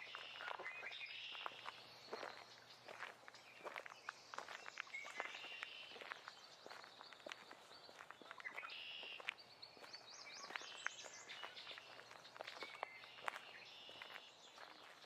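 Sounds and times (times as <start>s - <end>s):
birds singing: 0.0s - 15.0s
footsteps on forest floor: 0.0s - 15.0s.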